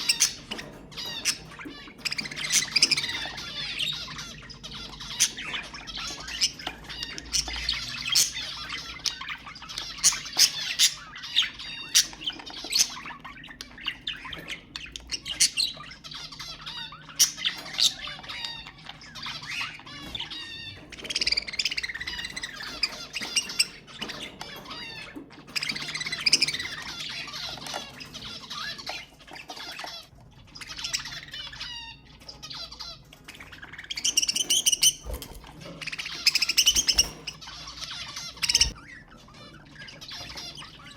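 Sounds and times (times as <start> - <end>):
budgerigars chattering and warbling: 0.0 - 40.9.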